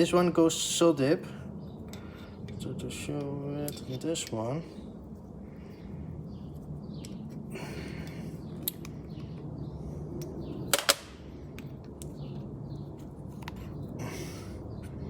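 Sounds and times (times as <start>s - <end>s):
steady low hum: 0.0s - 15.0s
metallic clicks of small parts: 8.6s - 9.0s.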